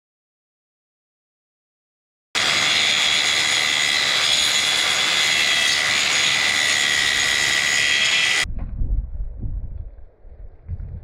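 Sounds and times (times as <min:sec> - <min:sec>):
power tool high-pitched whine: 0:02.4 - 0:08.4.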